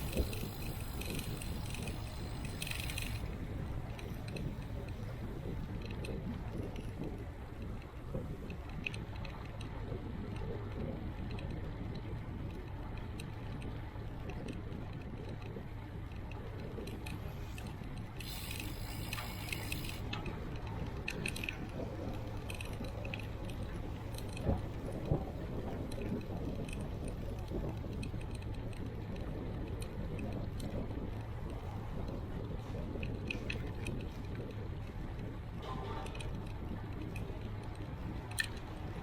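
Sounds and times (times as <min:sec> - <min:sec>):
wind and road noise: 0:00.0 - 0:39.0
bike metallic jangling: 0:18.2 - 0:20.0.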